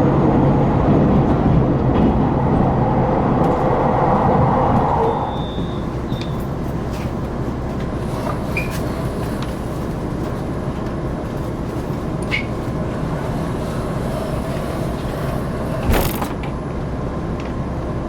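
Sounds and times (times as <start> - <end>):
railcar engine and wheels rumbling: 0.0 - 18.0.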